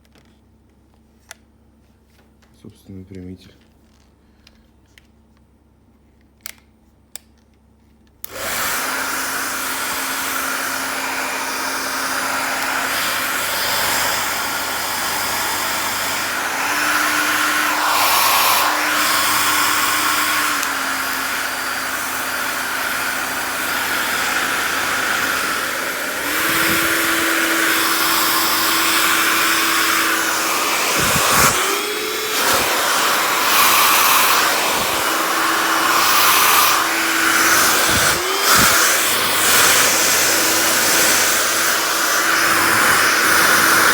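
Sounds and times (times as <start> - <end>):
hair dryer blowing: 8.2 - 43.9.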